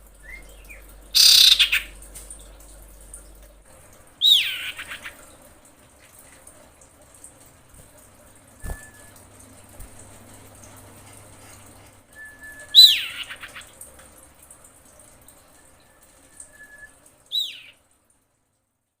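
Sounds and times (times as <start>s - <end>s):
bird whistling call: 0.2s - 1.9s, 12.2s - 13.6s, 16.4s - 17.8s.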